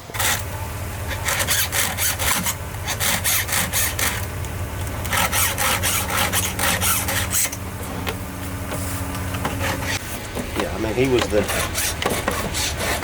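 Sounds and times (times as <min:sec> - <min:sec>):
file scraping chainsaw chain: 0:01.1 - 0:04.3, 0:05.0 - 0:07.6, 0:11.1 - 0:13.0.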